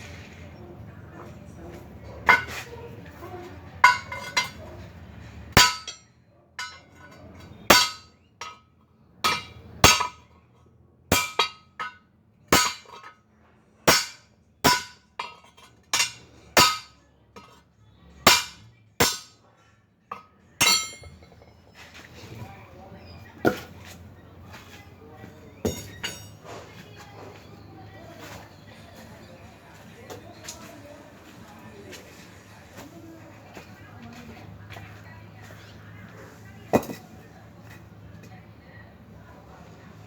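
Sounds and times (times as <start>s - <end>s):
hammer striking steel: 3.8s - 4.6s, 5.6s - 6.0s, 7.7s - 8.6s, 9.3s - 10.3s, 11.1s - 13.1s, 13.9s - 17.6s, 18.3s - 19.4s, 20.1s - 21.3s.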